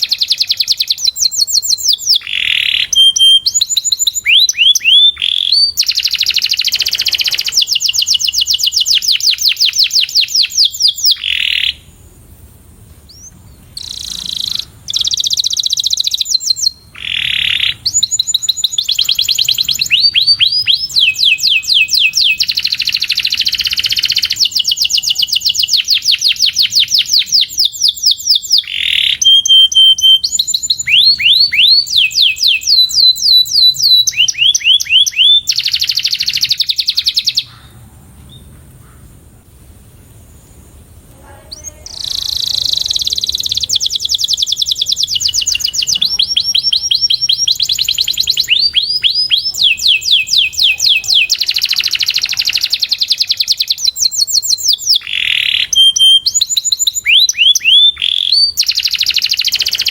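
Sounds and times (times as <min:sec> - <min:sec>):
canary singing trills: 0:00.0 - 0:12.1, 0:13.1 - 0:39.1, 0:41.2 - 0:59.9.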